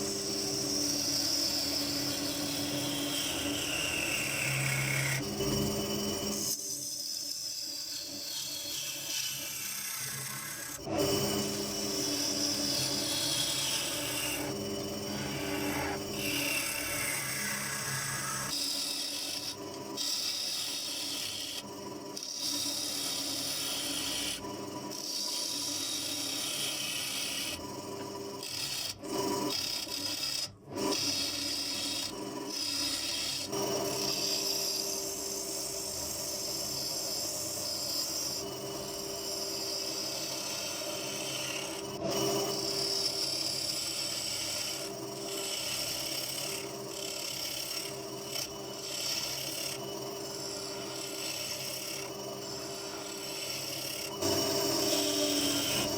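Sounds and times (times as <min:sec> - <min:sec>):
lathe hum: 0:00.0 - 0:55.9
turning tool scraping wood: 0:11.0 - 0:21.6, 0:28.4 - 0:35.1, 0:36.3 - 0:55.9.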